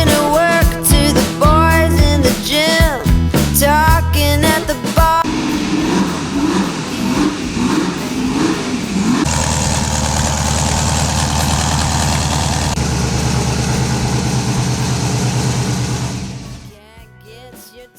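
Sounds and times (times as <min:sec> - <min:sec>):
car engine revving and idling: 0:05.2 - 0:16.7.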